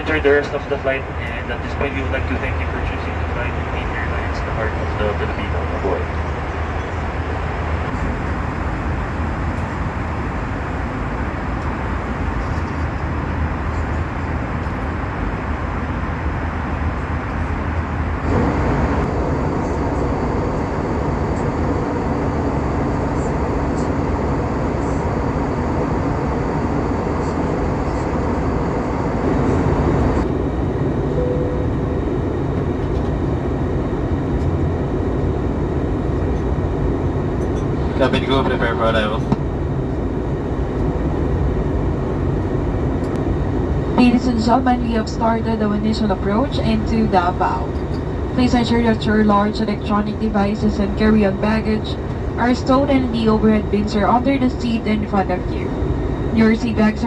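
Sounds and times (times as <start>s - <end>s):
aircraft cabin engine and airflow noise: 0.0s - 57.0s.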